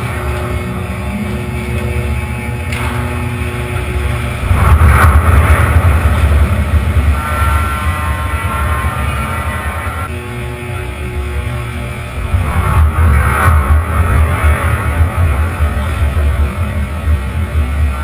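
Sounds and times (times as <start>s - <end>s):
ship launch deep rumble: 3.9s - 10.1s.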